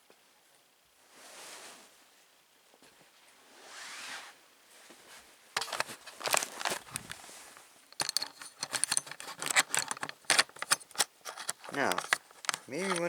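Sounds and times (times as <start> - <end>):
handling clicks and rattles: 5.6 - 13.0.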